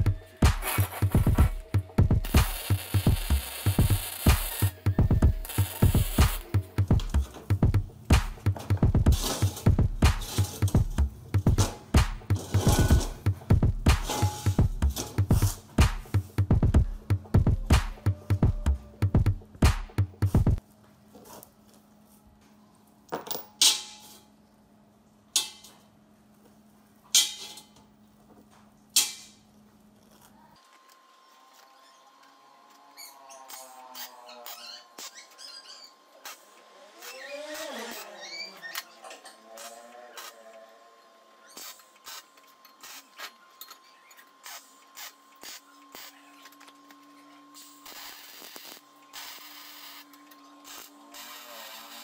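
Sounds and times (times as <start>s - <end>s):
scraping: 8.3s - 16.4s
metal parts clanking: 8.6s - 10.8s, 11.5s - 13.2s.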